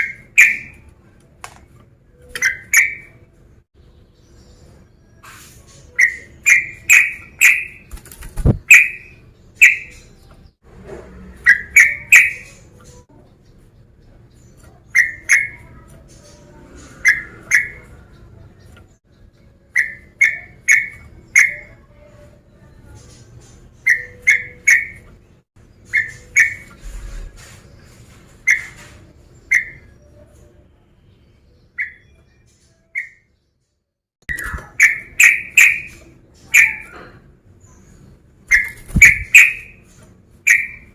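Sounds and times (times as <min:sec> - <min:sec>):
bird calling whistled notes: 0:40.5 - 0:40.9.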